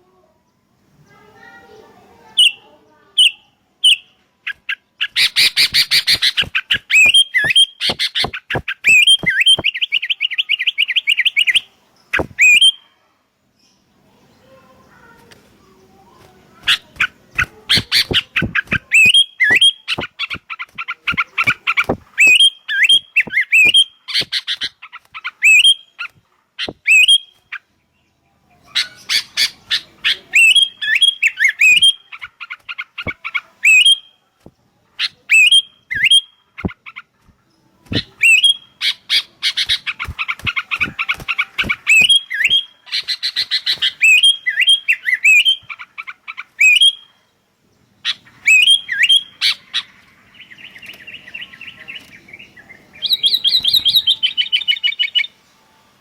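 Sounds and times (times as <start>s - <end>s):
birds chirping and whistling: 3.2s - 12.8s, 16.6s - 27.4s, 28.6s - 34.1s, 35.0s - 37.1s, 37.9s - 47.1s, 48.0s - 55.4s.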